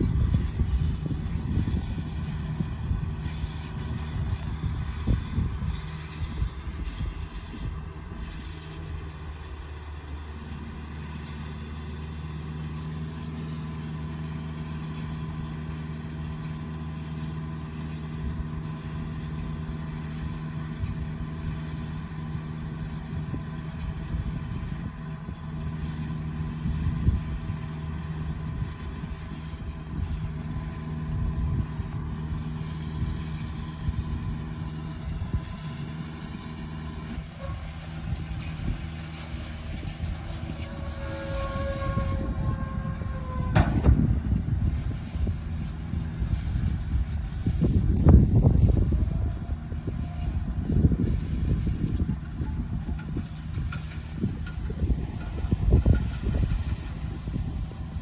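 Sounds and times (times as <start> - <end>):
tractor engine running: 0.0 - 58.0
uneven low rumble: 22.8 - 58.0.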